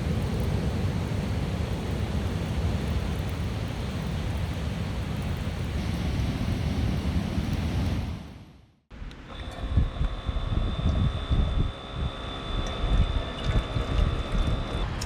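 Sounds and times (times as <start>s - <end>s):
ocean surf washing on beach: 0.0s - 8.6s
wind rumbling on microphone: 0.0s - 8.6s, 9.5s - 15.0s.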